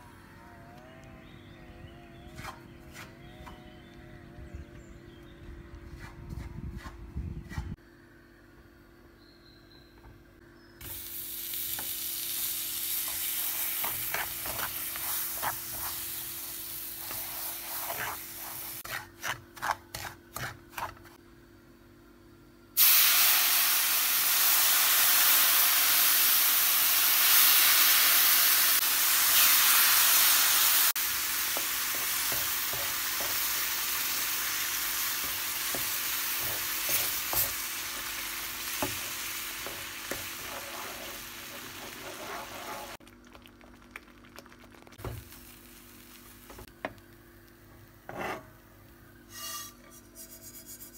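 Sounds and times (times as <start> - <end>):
food sizzling in a pan: 10.8 - 19.0, 22.8 - 43.0, 44.7 - 46.7
spoon stirring and scraping pan: 13.0 - 16.4, 17.0 - 21.2, 31.6 - 33.7, 35.0 - 43.0, 48.0 - 48.6, 49.3 - 50.9.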